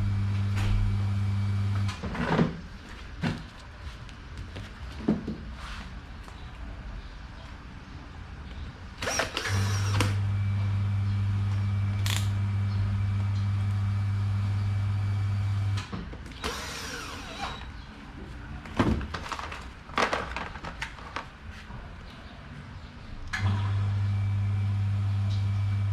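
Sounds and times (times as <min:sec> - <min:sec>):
electric fan motor humming: 0:00.0 - 0:02.0, 0:09.0 - 0:15.8.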